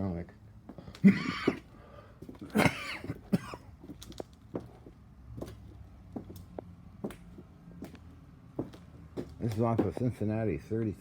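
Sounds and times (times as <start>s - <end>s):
person coughing: 1.0s - 1.6s, 2.4s - 3.7s.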